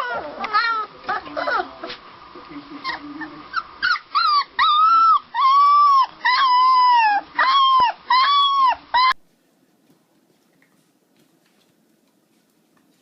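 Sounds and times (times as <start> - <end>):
puppy whining: 0.0 - 2.0, 2.8 - 9.2.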